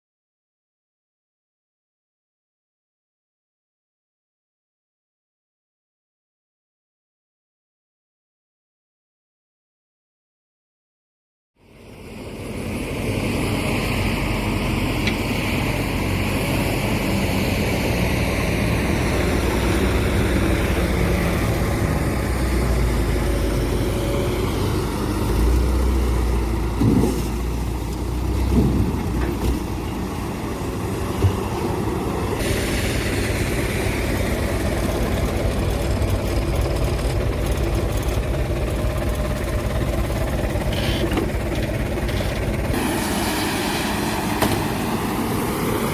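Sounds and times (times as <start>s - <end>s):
heavy diesel engines running: 11.6s - 45.9s.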